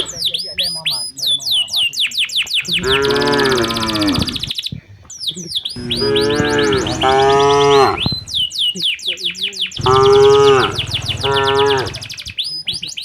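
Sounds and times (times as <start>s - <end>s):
cattle mooing: 2.8s - 4.5s, 5.8s - 8.5s, 9.8s - 12.1s.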